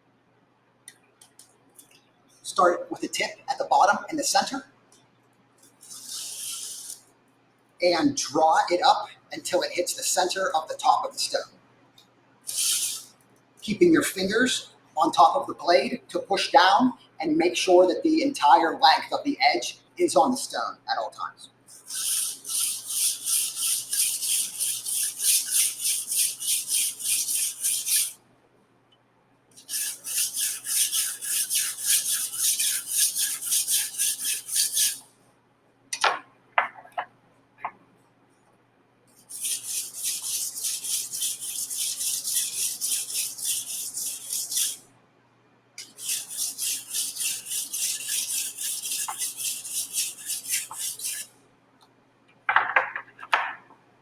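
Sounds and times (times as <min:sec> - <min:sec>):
knife grinding on sharpening stone: 0:05.8 - 0:07.0, 0:21.7 - 0:28.2, 0:29.6 - 0:35.0, 0:39.2 - 0:44.8, 0:45.8 - 0:51.3.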